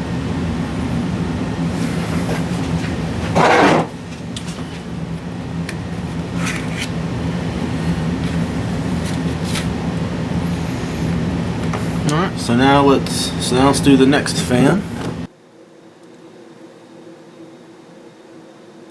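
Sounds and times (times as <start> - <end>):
low machine hum with tones: 0.0 - 18.9.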